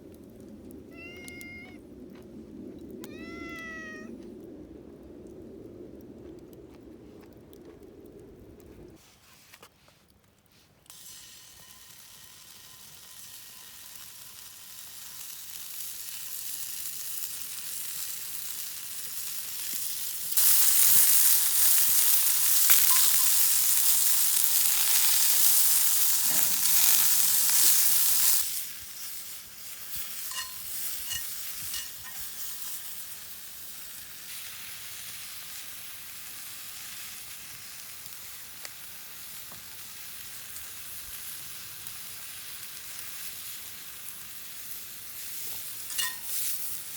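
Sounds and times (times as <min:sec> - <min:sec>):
food sizzling in a pan: 0:10.9 - 0:46.9.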